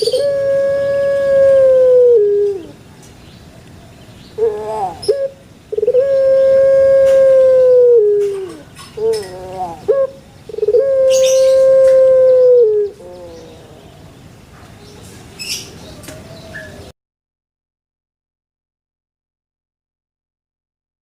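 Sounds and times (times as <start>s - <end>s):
dove cooing: 0.0s - 2.8s, 4.4s - 14.1s.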